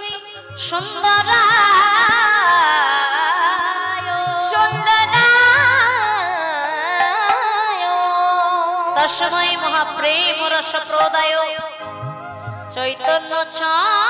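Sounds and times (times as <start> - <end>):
woman singing devotional verse: 0.0 - 12.0, 12.6 - 14.0
held accompanying notes: 10.9 - 13.8.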